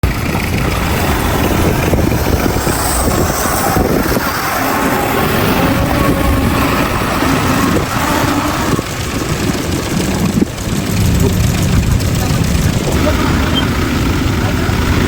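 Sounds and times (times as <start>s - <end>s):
heavy diesel machinery running: 0.0s - 15.0s.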